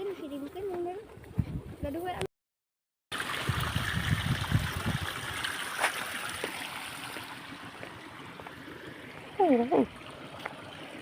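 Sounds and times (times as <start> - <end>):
running water rushing: 3.1 - 11.0.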